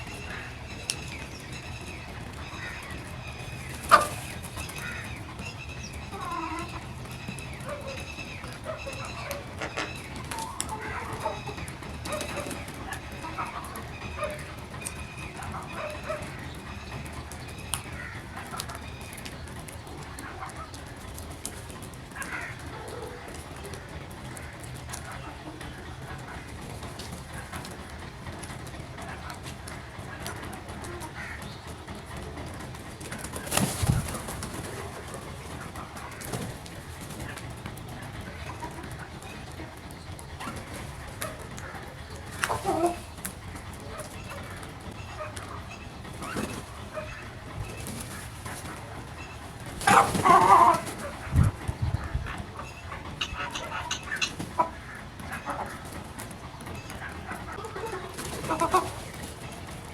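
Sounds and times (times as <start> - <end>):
crows calling: 0.0 - 20.8, 21.8 - 27.8, 30.2 - 32.0, 43.8 - 56.1
birds cooing softly: 0.0 - 59.9.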